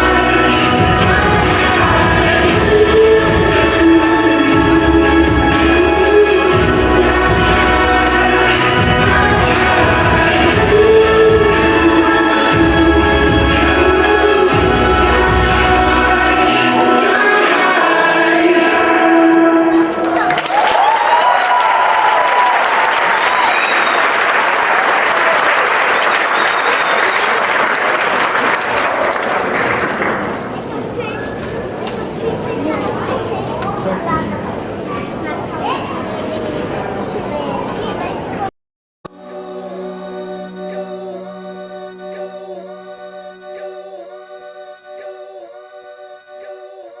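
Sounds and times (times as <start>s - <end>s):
held music note: 0.0s - 20.0s, 39.1s - 47.0s
choir-like vocal chord: 0.0s - 20.3s, 39.1s - 47.0s
audience applauding: 20.0s - 30.6s.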